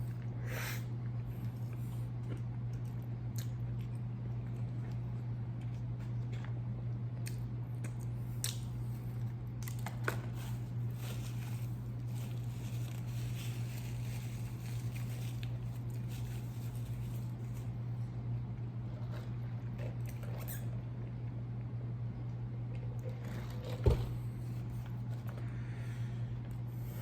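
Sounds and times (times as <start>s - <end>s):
steady low hum: 0.0s - 27.0s
chewing and wet mouth sounds: 1.4s - 10.2s, 18.9s - 20.8s
small crunches: 7.2s - 17.8s.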